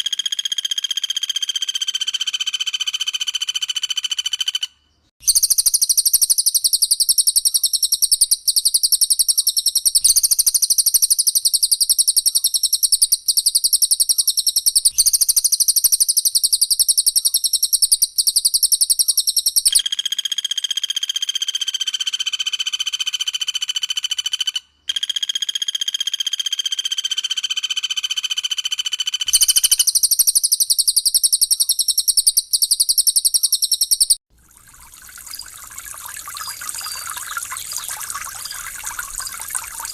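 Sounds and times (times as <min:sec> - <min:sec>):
bird ringing song: 0:00.2 - 0:19.8, 0:29.1 - 0:39.9
bird high-pitched trill: 0:05.2 - 0:19.8, 0:29.2 - 0:34.2, 0:35.1 - 0:39.9.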